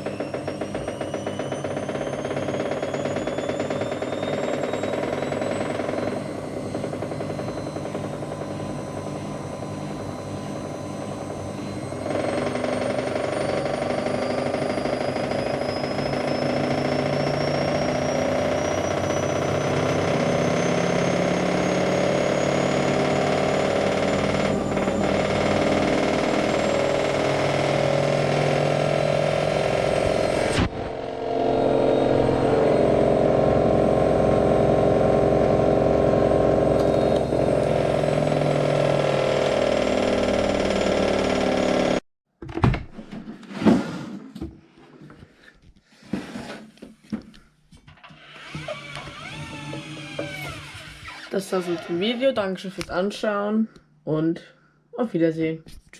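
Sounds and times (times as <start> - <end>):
washing machine spinning: 0.0 - 42.0
rattle: 36.8 - 42.0.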